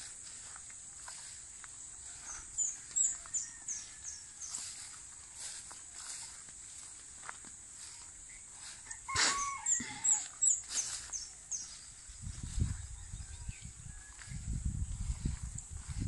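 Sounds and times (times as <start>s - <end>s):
bird calls: 7.8s - 11.9s
high bird chirps: 8.3s - 11.9s.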